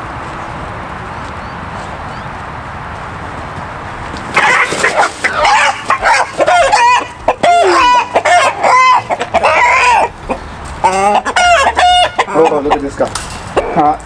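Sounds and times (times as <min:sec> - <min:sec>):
rooster squawking in alarm: 0:04.4 - 0:12.9.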